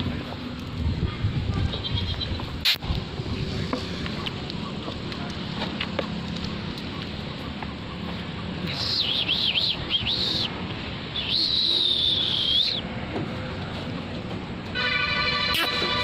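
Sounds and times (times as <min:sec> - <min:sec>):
long high bird whistle: 0:11.2 - 0:12.8.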